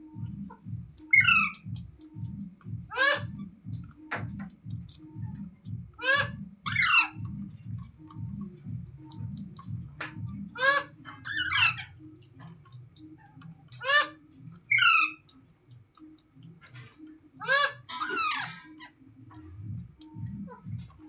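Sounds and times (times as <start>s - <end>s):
parrot squawking: 1.0s - 1.7s, 2.9s - 3.5s, 6.0s - 7.3s, 10.5s - 12.0s, 13.2s - 15.3s, 17.4s - 19.0s.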